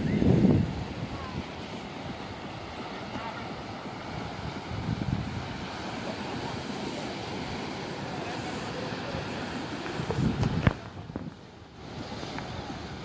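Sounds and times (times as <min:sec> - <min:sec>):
wind buffeting microphone: 0:00.0 - 0:02.6, 0:04.0 - 0:05.9, 0:09.4 - 0:13.0
rushing water: 0:00.0 - 0:13.0.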